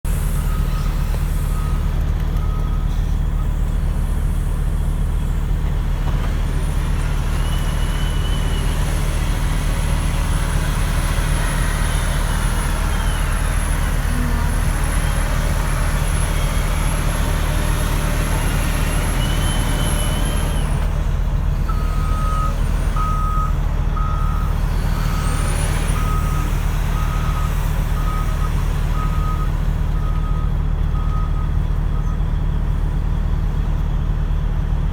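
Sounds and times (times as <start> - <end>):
heavy diesel machinery running: 0.0 - 34.9
reversing alarm beeping: 21.7 - 32.2.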